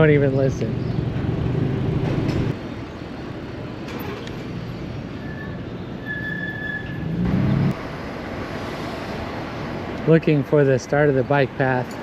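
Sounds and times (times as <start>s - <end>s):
wind and riding noise: 0.0s - 12.0s
bike brakes squealing: 5.2s - 7.2s.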